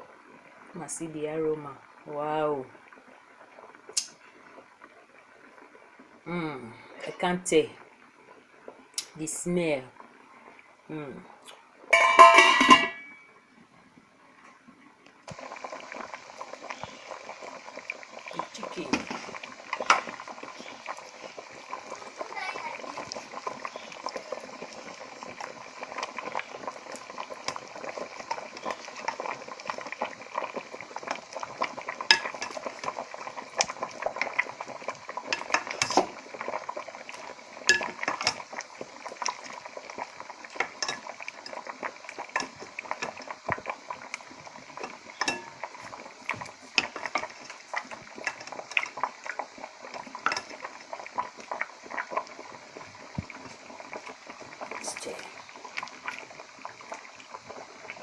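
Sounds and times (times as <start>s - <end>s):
soup bubbling: 0.0s - 58.0s
spoon clinking against pot: 12.0s - 13.2s, 45.2s - 45.6s.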